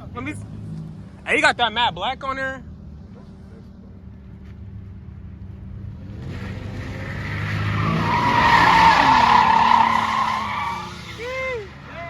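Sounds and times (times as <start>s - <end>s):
car engine revving: 5.9s - 11.9s
tyre squeal: 6.9s - 11.4s.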